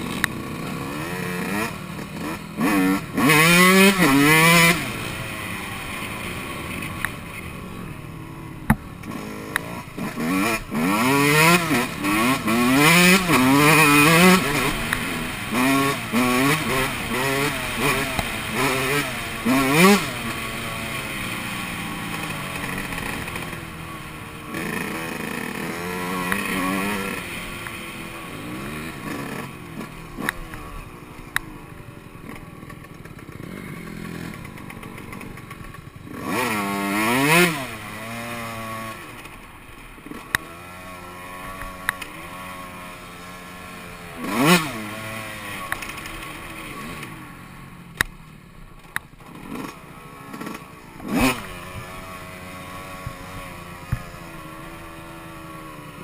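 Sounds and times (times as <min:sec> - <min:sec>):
dirt bike engine revving: 0:00.0 - 0:48.1, 0:48.7 - 0:56.0.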